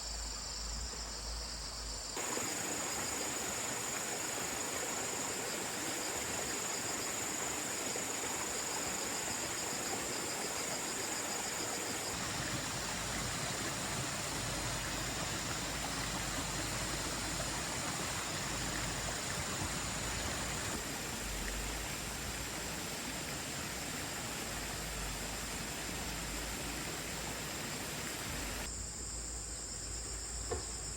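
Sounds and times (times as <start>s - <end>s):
insects trilling: 0.0s - 22.8s
water hissing: 2.2s - 28.7s.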